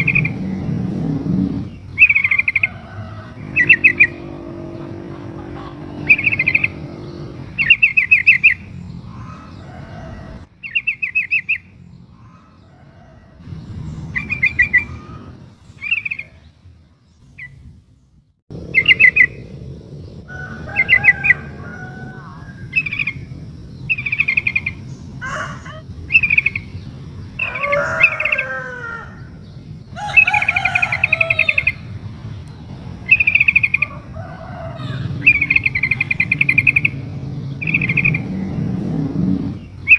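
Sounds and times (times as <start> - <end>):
lower gliding bird notes: 0.0 - 10.5, 18.5 - 39.9
bulbul chattering trills: 0.0 - 12.6, 29.2 - 34.2, 34.8 - 39.9.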